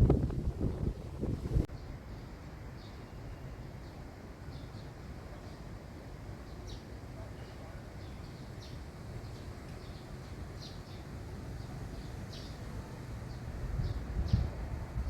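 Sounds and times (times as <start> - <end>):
small birds chirping: 6.4 - 14.6.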